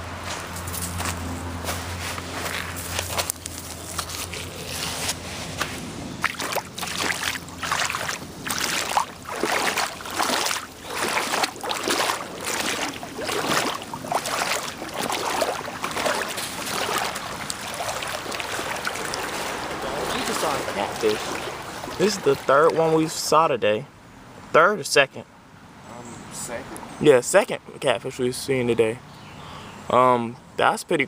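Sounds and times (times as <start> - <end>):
creek water sloshing and splashing: 0.4 - 23.4.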